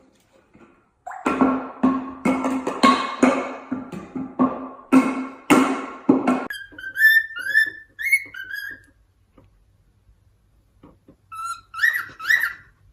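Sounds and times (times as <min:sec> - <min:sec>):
parrot whistling upward calls: 0:06.5 - 0:08.9, 0:11.3 - 0:12.8.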